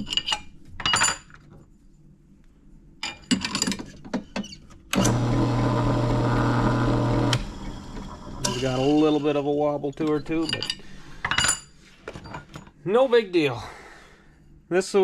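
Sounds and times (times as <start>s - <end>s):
drill motor humming: 5.0s - 8.6s.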